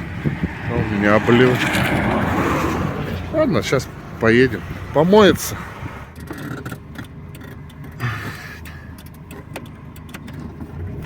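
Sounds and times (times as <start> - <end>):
van engine running at low revs: 0.0 - 11.0
light clicks and rattles: 6.1 - 11.0.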